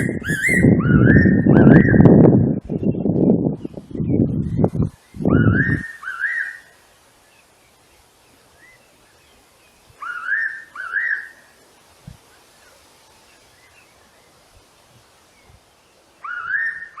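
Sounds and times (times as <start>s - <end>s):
bird whistled call: 0.0s - 2.0s, 5.2s - 6.6s, 10.0s - 11.4s, 16.2s - 17.0s
faint soft bird calls: 4.9s - 11.6s, 15.2s - 17.0s.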